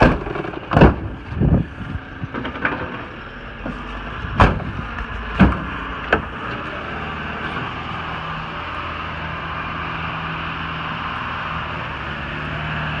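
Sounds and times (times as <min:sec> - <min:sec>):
heavy thumps: 0:00.0 - 0:02.7, 0:03.7 - 0:06.3
diesel truck engine idling: 0:00.0 - 0:13.0.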